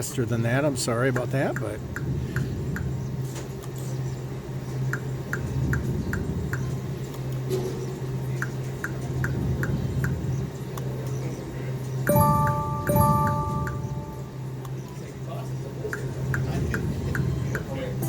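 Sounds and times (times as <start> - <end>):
low machine hum: 0.0 - 18.0
slot machine reel ticks: 12.0 - 14.4.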